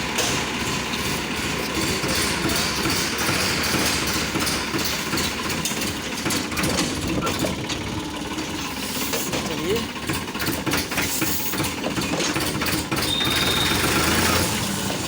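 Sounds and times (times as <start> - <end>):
tractor diesel engine rattling: 0.0 - 15.0.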